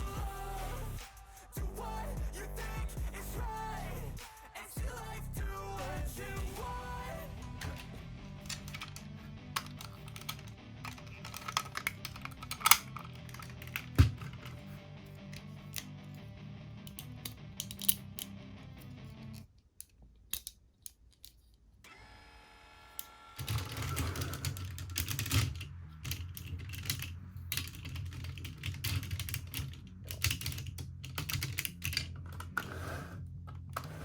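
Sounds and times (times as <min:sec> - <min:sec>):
plastic toy parts clicking: 0:07.6 - 0:14.7, 0:16.8 - 0:21.8, 0:23.4 - 0:32.6.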